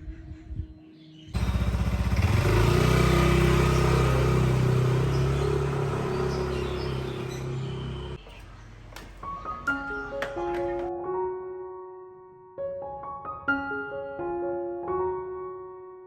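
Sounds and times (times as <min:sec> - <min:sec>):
small engine running: 0:01.4 - 0:08.2.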